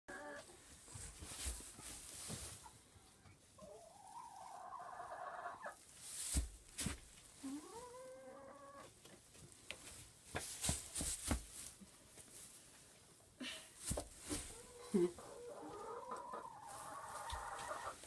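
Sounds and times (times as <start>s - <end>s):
rustling: 0.5s - 4.6s, 5.8s - 7.9s, 8.8s - 14.9s.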